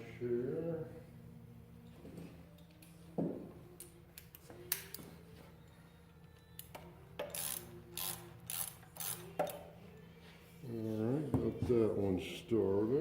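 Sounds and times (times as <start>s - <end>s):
wrench clicking on bolt: 6.6s - 9.6s
wrench scraping turns: 6.6s - 9.6s.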